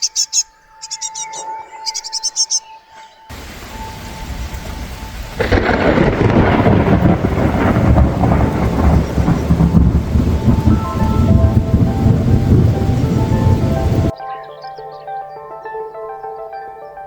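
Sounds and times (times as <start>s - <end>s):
low rumble of thunder: 3.3s - 14.1s
rain falling: 3.3s - 14.1s.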